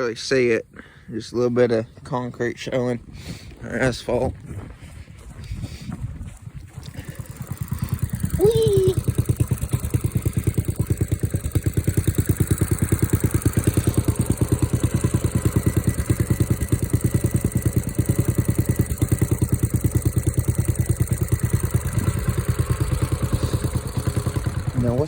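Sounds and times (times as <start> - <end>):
small gasoline engine idling: 5.3 - 25.0.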